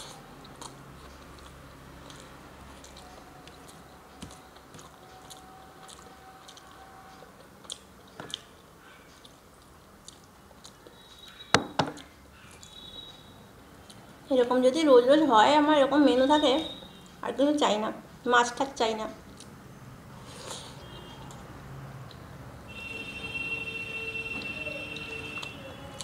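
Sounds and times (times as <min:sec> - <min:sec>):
chewing and mouth sounds: 0:00.0 - 0:11.3, 0:19.2 - 0:19.6.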